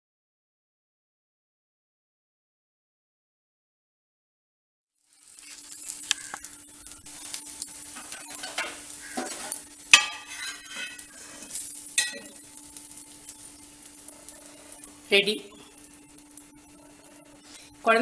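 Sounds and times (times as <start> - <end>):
batter sizzling in oil: 5.0 - 18.0
metal spatula scraping and clinking: 8.0 - 12.4.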